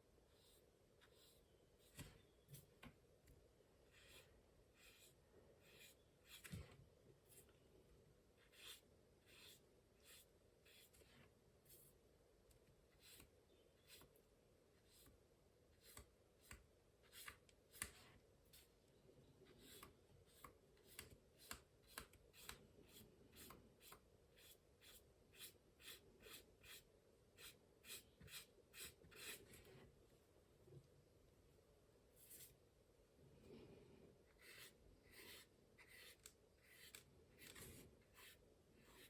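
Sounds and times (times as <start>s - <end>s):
paintbrush strokes on paper: 3.9s - 7.5s, 8.4s - 12.0s, 22.3s - 30.0s, 32.2s - 32.6s, 33.5s - 39.0s.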